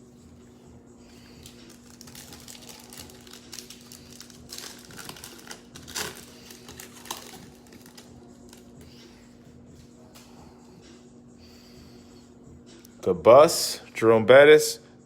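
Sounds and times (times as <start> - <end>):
plastic wrapper crinkling: 1.4 - 8.7.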